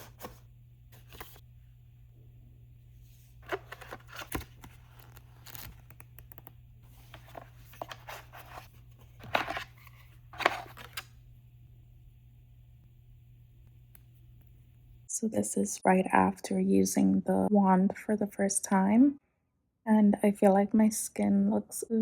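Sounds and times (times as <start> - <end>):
packaging tearing and crinkling: 3.4 - 6.0.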